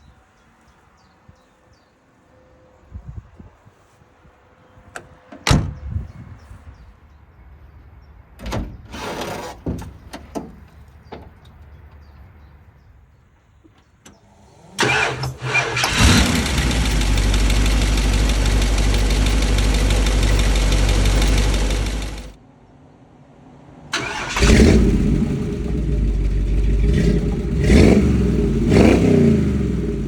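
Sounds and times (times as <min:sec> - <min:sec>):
truck engine running loud: 0:14.3 - 0:22.4
starter cranking: 0:14.6 - 0:22.3.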